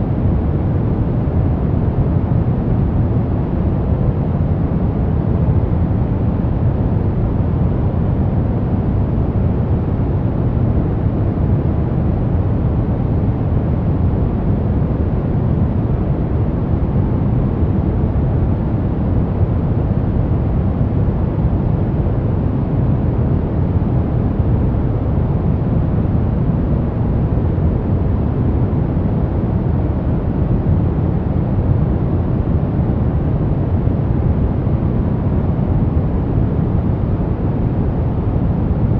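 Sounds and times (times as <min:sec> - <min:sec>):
low white noise: 0:00.0 - 0:38.9.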